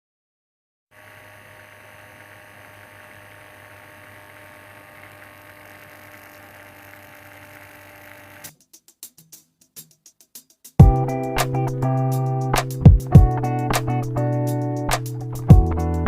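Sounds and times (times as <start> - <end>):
electrical hum with hiss: 1.0 - 8.5.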